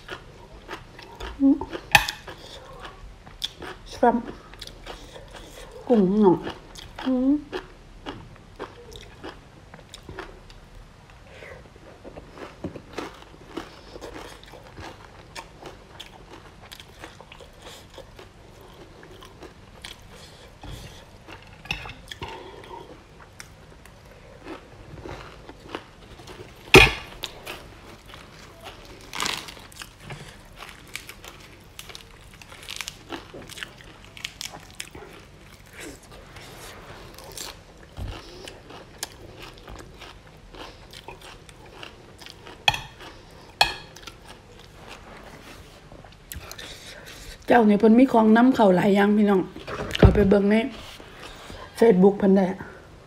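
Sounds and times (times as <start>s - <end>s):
person chewing and crunching: 0.0s - 10.7s, 11.6s - 45.3s.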